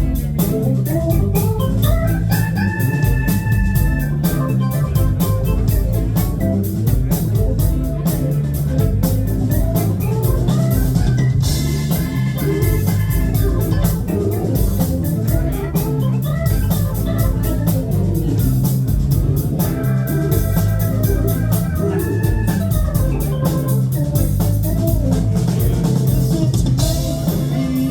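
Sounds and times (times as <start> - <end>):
drum kit: 0.0 - 27.9
electric bass: 0.0 - 27.9
organ-sound keyboards: 0.0 - 27.9.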